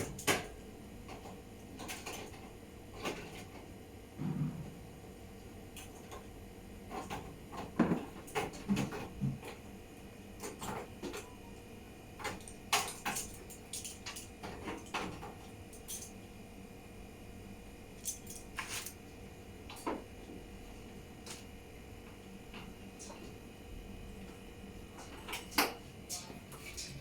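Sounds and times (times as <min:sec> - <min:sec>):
tools and parts clicking and tapping: 0:12.2 - 0:16.1.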